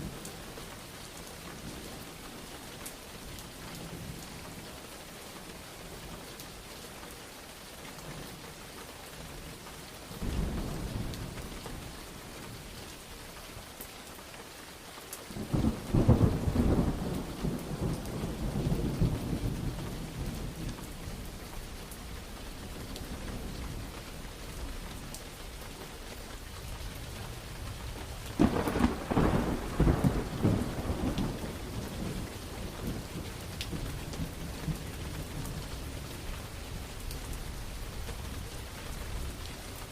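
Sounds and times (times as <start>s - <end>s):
steady rain: 0.0s - 39.9s
thunder rolling: 28.4s - 33.2s.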